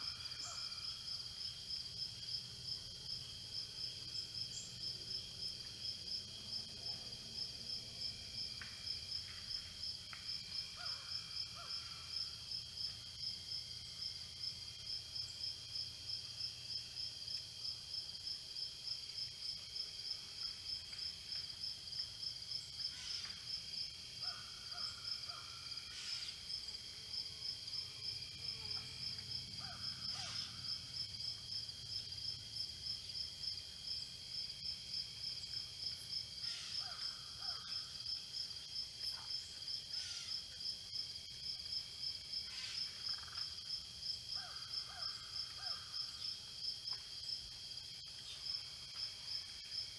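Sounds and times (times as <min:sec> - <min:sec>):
crickets chirping in pulsing chorus: 0:00.0 - 0:49.9.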